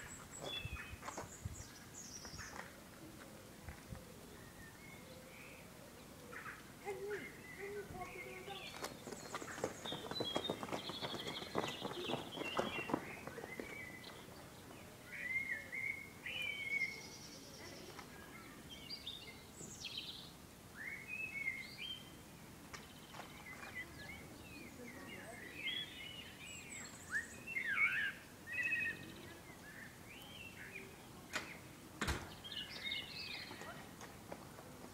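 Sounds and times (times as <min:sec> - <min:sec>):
faint outdoor background noise: 0:00.0 - 0:34.9
songbirds singing and calling: 0:00.0 - 0:34.9.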